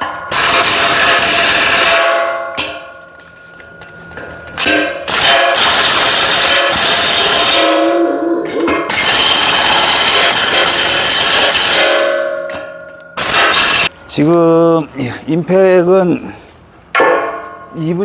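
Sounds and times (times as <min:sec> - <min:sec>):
impact wrench hammering bolts: 0:04.6 - 0:07.7, 0:08.6 - 0:13.9.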